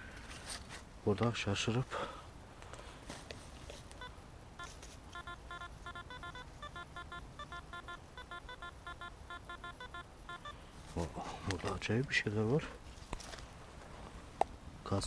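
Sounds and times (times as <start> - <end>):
metal detector beeping: 4.0 - 10.7.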